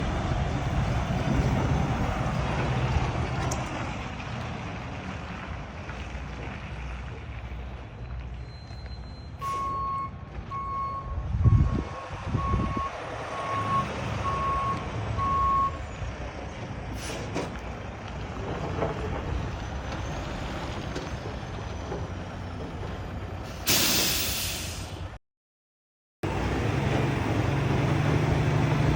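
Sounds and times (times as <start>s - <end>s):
truck engine rumbling: 0.0s - 25.2s, 26.2s - 28.9s
reversing alarm beeping: 8.4s - 15.8s
short loud hiss: 23.7s - 25.0s.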